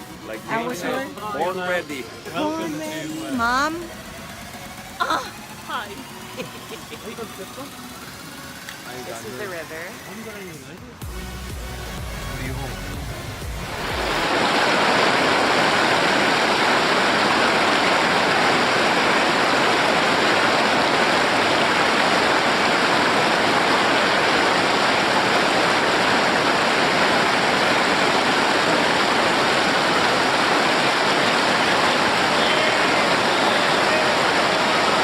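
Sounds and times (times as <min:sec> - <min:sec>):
river rapids rushing: 0:13.4 - 0:35.0.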